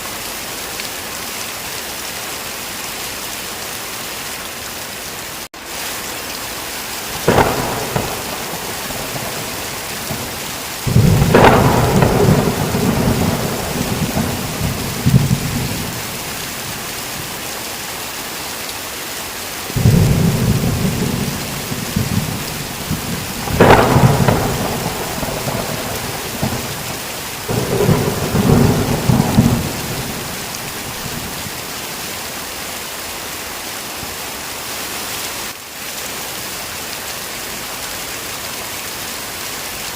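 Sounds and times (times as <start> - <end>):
heavy rain falling: 0.0 - 39.9
thunder cracks and rolling peals: 7.1 - 17.3, 19.7 - 31.7.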